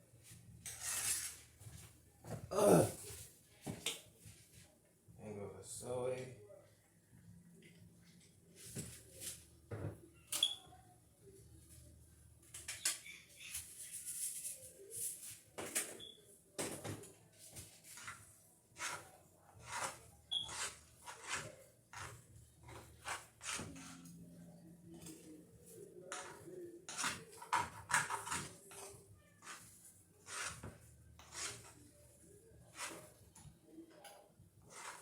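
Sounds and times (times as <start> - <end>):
utensil scraping in a pan: 0.2 - 1.9, 17.5 - 33.3, 34.6 - 35.0.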